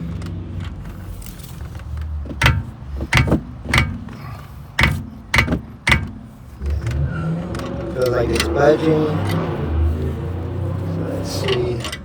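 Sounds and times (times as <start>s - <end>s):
hammer clanking on wrench: 2.3s - 8.6s.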